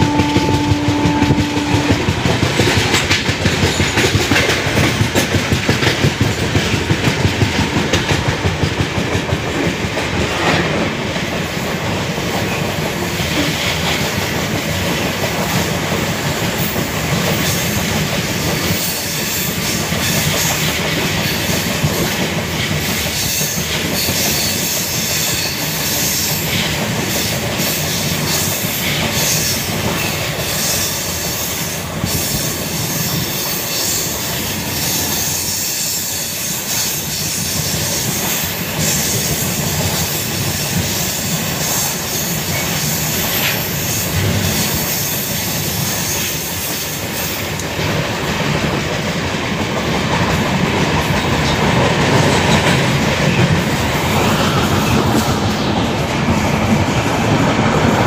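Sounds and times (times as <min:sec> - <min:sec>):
clattering over rails: 0:00.0 - 0:11.4
train wheel and track noise: 0:00.0 - 0:58.0.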